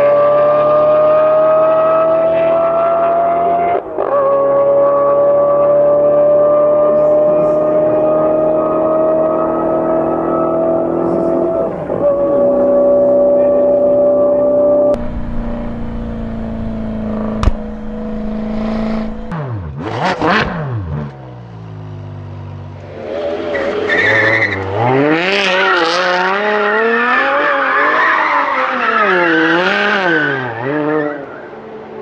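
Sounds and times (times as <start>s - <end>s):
sports car engine revving hard: 0.0s - 21.3s
car engine revving: 0.0s - 22.2s, 22.8s - 30.1s
tyres squealing on tarmac: 23.5s - 24.7s, 27.5s - 31.4s.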